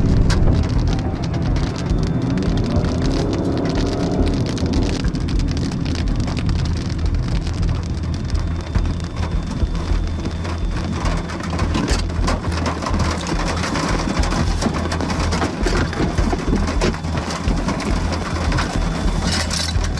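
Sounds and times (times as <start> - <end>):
heavy rain: 0.0 - 19.9
low rumble: 0.0 - 19.9.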